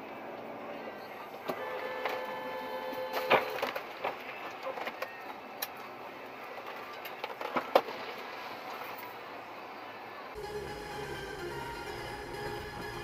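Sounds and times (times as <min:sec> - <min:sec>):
vehicle running: 0:10.3 - 0:13.0.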